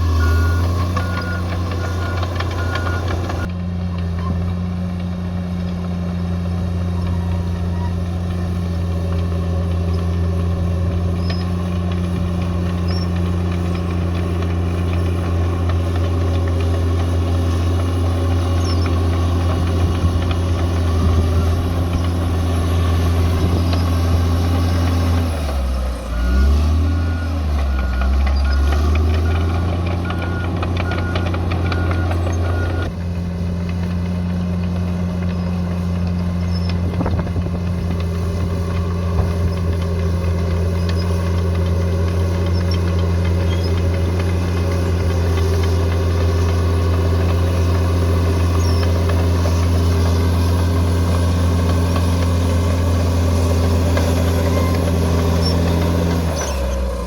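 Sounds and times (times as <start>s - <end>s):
reversing alarm beeping: 0.0s - 3.5s, 26.1s - 32.9s
bulldozer diesel engine running: 0.0s - 57.0s.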